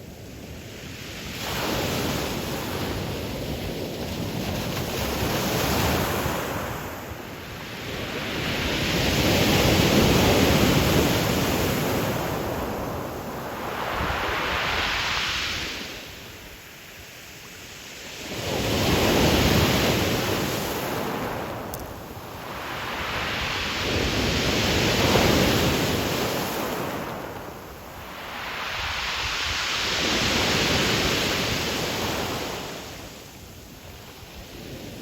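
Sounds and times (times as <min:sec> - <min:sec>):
waves breaking on pebble beach: 0:07.7 - 0:16.2, 0:18.2 - 0:33.1.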